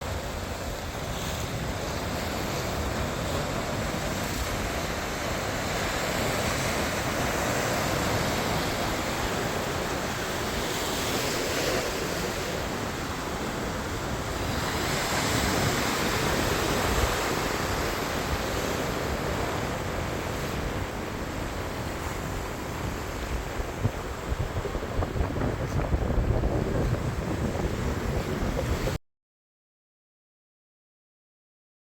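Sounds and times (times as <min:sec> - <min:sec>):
waves breaking on beach: 0:00.0 - 0:29.0
wind buffeting microphone: 0:11.8 - 0:29.0.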